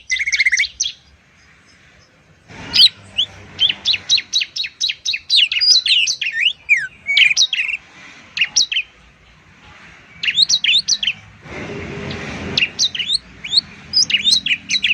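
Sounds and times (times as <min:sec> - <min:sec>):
songbirds chirping and whistling: 0:00.0 - 0:14.9
brief hiss: 0:11.0 - 0:14.1.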